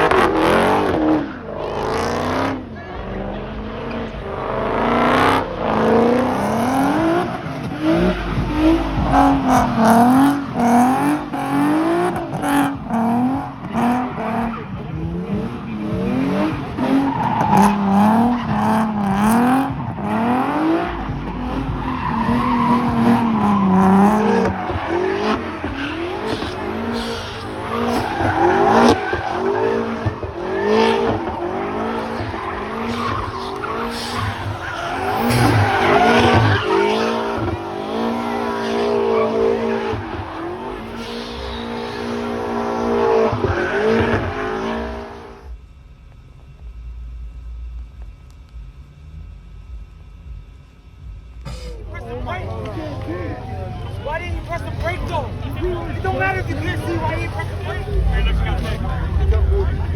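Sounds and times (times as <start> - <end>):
car engine revving: 0.0 - 45.7, 48.8 - 59.9
tyres squealing: 21.2 - 45.2.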